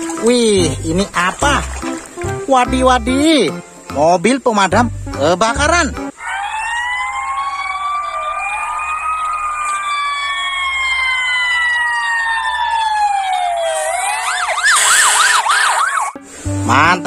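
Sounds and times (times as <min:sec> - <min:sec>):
ambulance and fire engine sirens wailing: 0:06.1 - 0:16.2
siren yelp: 0:06.1 - 0:16.2.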